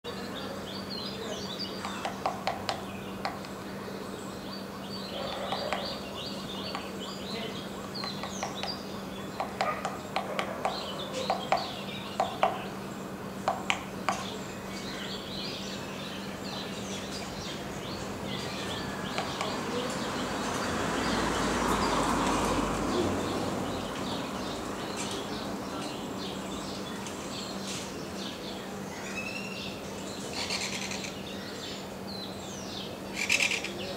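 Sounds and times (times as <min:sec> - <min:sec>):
birds chirping: 0:00.1 - 0:33.9
woodpecker tapping on tree: 0:01.8 - 0:03.5, 0:06.7 - 0:07.0, 0:08.0 - 0:08.8, 0:09.4 - 0:12.6, 0:13.4 - 0:14.4, 0:19.1 - 0:20.7.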